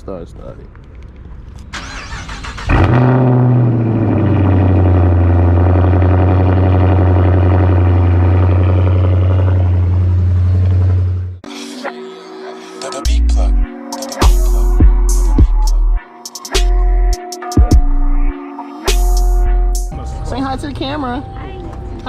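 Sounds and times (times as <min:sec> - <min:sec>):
car engine starting and idling: 0:01.5 - 0:11.4.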